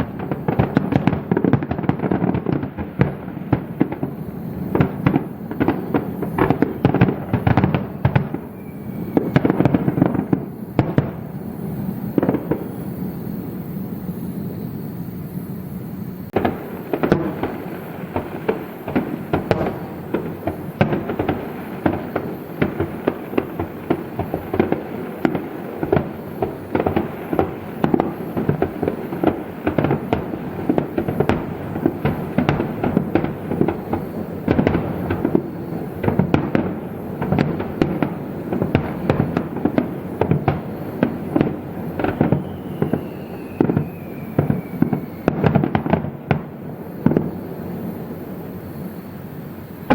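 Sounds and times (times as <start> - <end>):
fireworks bangs and bursts: 0.0 - 14.5, 16.3 - 49.9
thin falling whistle: 8.5 - 9.6, 42.0 - 45.4.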